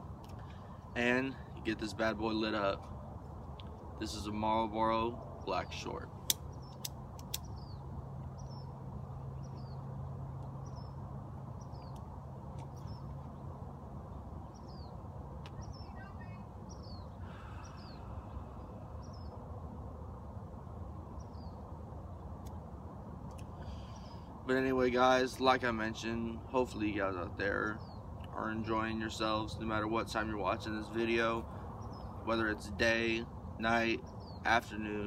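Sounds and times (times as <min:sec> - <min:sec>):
low background hum: 0:00.0 - 0:35.0
sharp clicks: 0:06.2 - 0:07.5.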